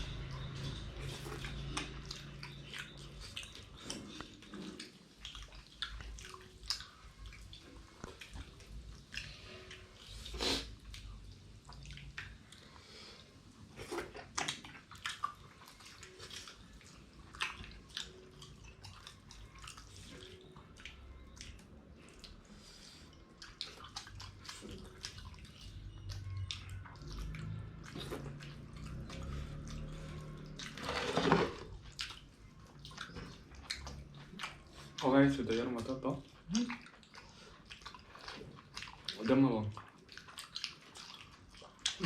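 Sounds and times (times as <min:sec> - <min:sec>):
wet chewing and smacking: 0:00.0 - 0:42.0
slurp: 0:10.1 - 0:11.0, 0:27.5 - 0:31.8.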